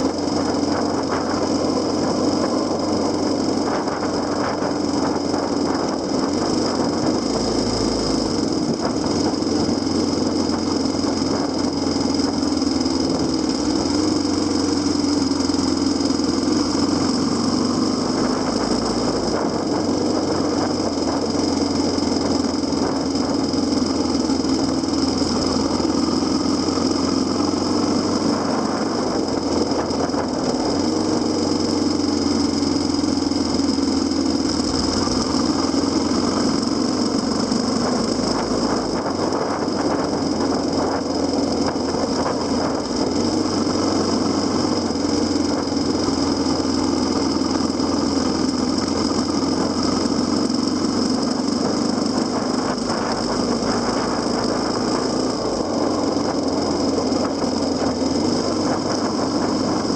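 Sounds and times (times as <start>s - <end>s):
motorcycle engine running: 0.0s - 59.9s
steady high whine: 0.0s - 59.9s.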